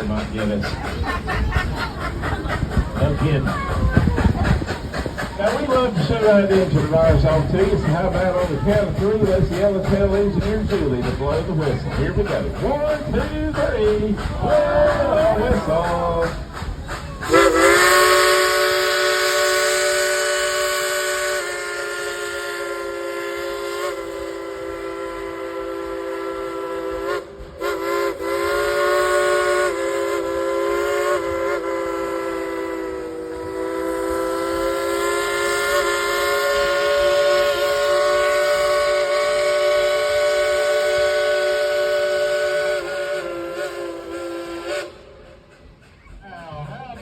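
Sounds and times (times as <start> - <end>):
steam locomotive whistle chord: 17.3 - 45.6.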